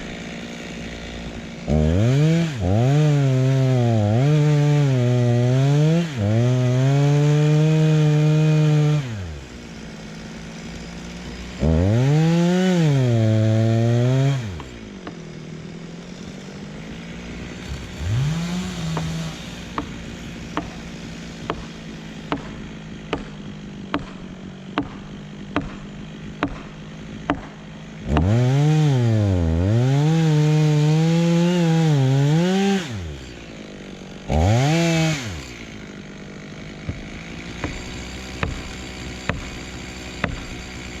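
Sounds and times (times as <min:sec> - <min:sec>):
chainsaw cutting wood: 0:00.0 - 0:41.0
sharp rhythmic knocks: 0:21.4 - 0:27.6, 0:36.9 - 0:40.6.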